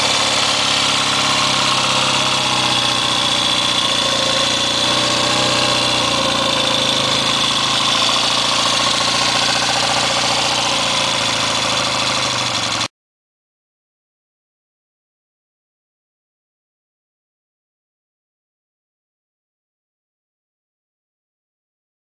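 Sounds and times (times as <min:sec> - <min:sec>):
motorcycle engine fast idle: 0:00.0 - 0:12.9.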